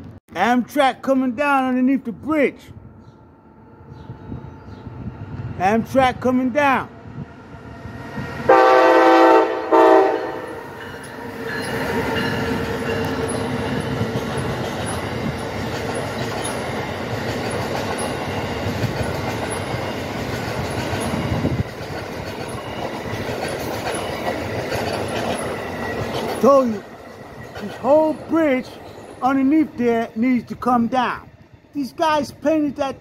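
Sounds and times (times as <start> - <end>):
train wheels rushing on rails: 4.1 - 33.0
train chime horn: 8.5 - 13.4.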